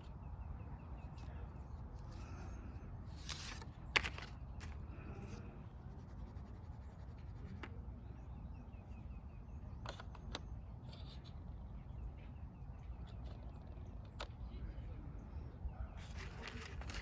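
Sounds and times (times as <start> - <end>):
low outdoor rumble: 0.0 - 17.0
pencil scratching on paper: 5.8 - 7.6.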